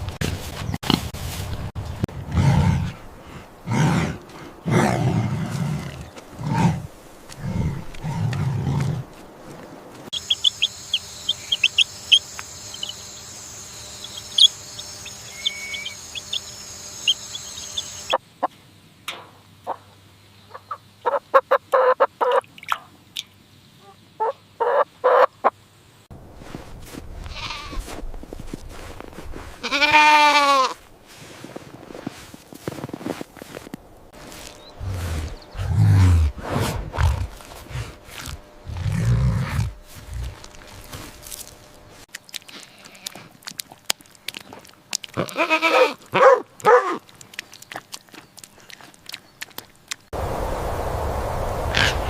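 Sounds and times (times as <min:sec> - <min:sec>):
pig grunting: 0:02.2 - 0:03.0, 0:03.6 - 0:09.1, 0:34.8 - 0:40.9
steady hiss: 0:09.2 - 0:18.2, 0:50.2 - 0:52.0
chickens clucking: 0:10.1 - 0:18.5, 0:20.5 - 0:22.4.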